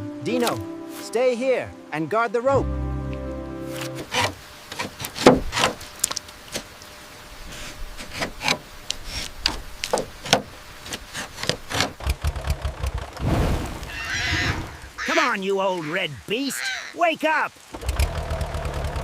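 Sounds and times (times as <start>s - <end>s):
irregular knocks and clicks: 4.0s - 6.6s, 9.4s - 13.0s
tractor engine rumbling: 9.9s - 15.3s, 17.6s - 19.0s.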